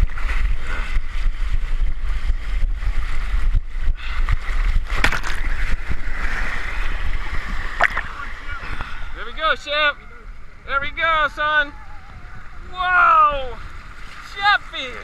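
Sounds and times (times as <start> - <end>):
wind buffeting microphone: 0.0 - 14.9
rushing splashing water: 0.0 - 15.0
sharp splash: 4.0 - 8.5.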